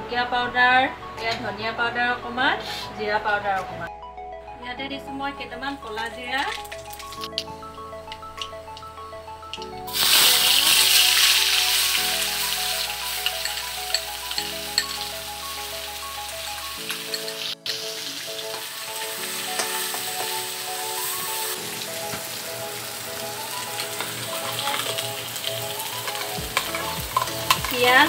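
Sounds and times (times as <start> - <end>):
background music: 0.0 - 28.0
metal spatula stirring: 9.5 - 15.1, 16.9 - 17.6, 26.0 - 28.0
paste sizzling in hot oil: 9.9 - 28.0.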